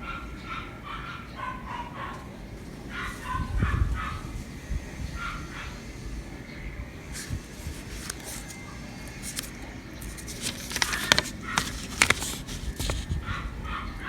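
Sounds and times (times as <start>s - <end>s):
handling scraping and rustling: 7.2s - 13.2s
sharp clicks and crackles: 10.2s - 13.1s.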